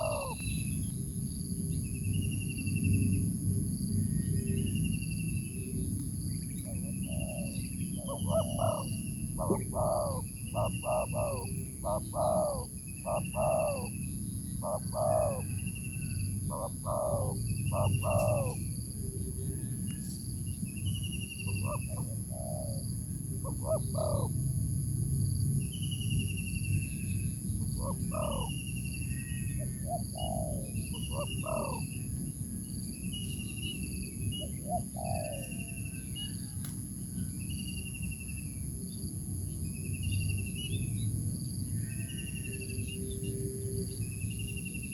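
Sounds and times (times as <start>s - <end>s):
birds calling: 0.0s - 0.9s, 6.5s - 20.0s, 20.9s - 24.4s, 26.3s - 32.2s, 32.9s - 36.6s.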